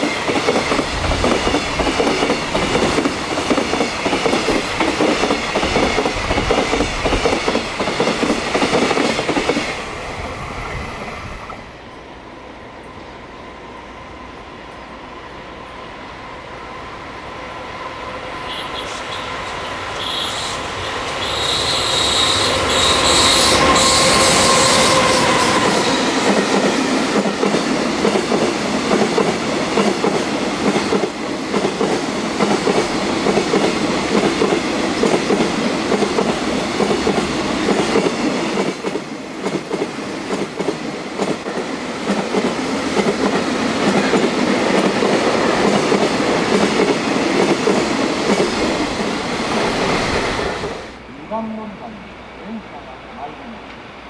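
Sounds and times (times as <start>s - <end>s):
electric locomotive whine: 0.0s - 54.0s
wheels clattering on rails: 22.3s - 51.0s.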